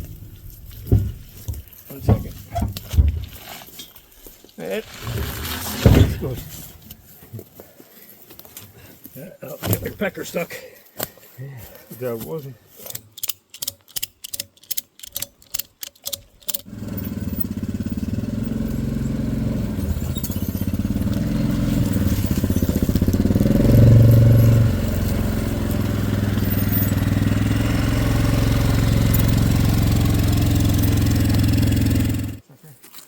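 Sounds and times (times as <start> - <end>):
small petrol engine running: 4.9 - 6.4, 16.6 - 32.4.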